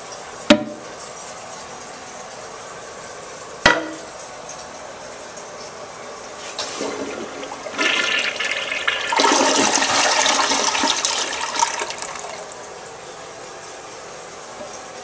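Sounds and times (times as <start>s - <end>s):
toilet flushing: 6.3s - 12.8s.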